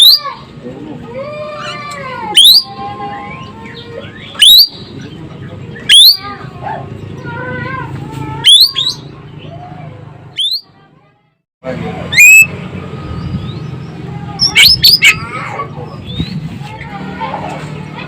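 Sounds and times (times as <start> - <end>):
bird whistles sweeping upward: 10.4 - 10.6
soft wavering bird whistles: 10.4 - 10.7.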